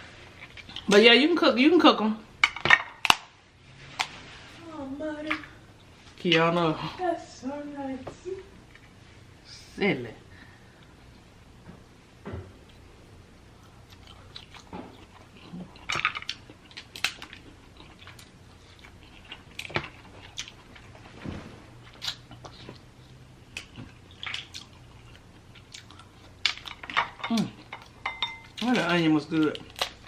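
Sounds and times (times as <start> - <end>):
chewing and biting: 13.6 - 21.2, 21.8 - 28.7.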